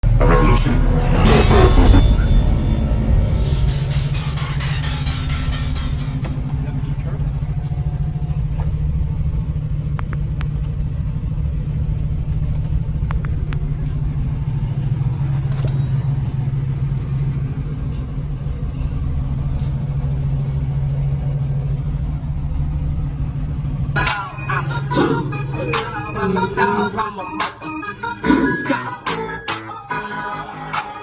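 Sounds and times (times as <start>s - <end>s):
subwoofer playing deep bass note: 0.0s - 10.1s.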